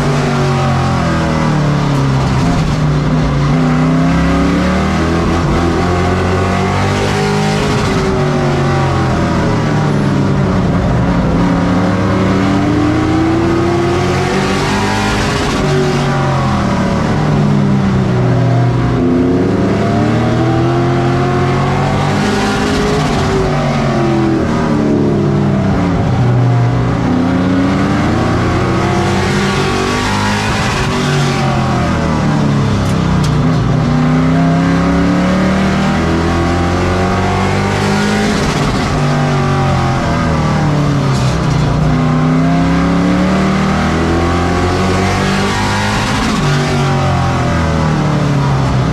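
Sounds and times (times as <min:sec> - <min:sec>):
race truck engines: 0:00.0 - 0:48.9.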